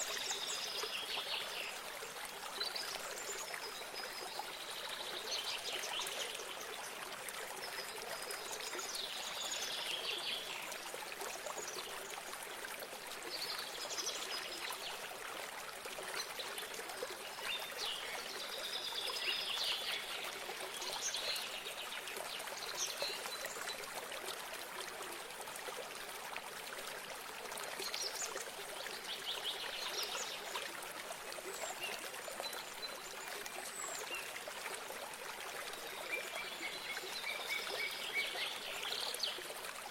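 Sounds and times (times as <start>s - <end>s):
small stream trickling: 0.0s - 39.9s.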